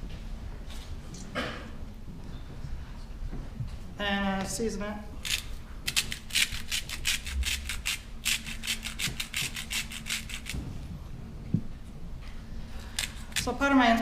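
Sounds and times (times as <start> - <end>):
spice grinder rasping: 5.2 - 10.6, 12.8 - 13.5.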